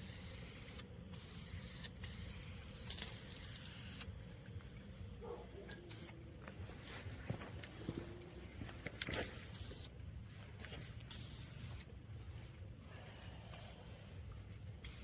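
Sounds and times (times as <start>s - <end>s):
spray paint can hissing: 0.0s - 4.1s, 5.9s - 6.2s, 9.3s - 10.0s, 10.7s - 11.9s, 13.5s - 13.8s, 14.8s - 15.0s.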